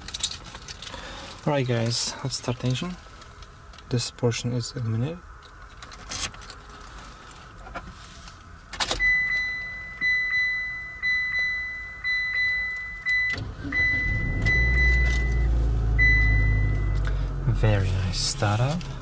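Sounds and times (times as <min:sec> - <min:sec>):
car engine cranking and idling: 0:00.0 - 0:19.0
ignition click: 0:08.7 - 0:17.2
pulsing dashboard warning chime: 0:09.0 - 0:17.0.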